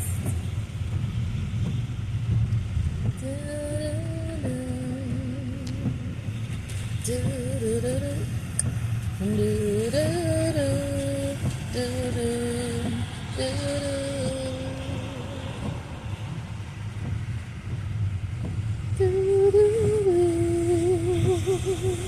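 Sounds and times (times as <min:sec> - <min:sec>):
car driving rumble: 0:00.0 - 0:22.0.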